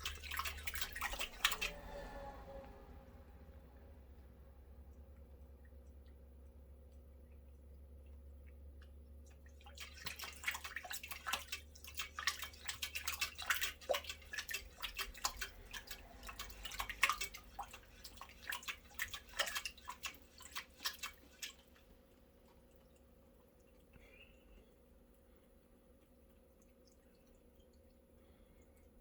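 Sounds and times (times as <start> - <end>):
cat lapping water: 0.0 - 29.0.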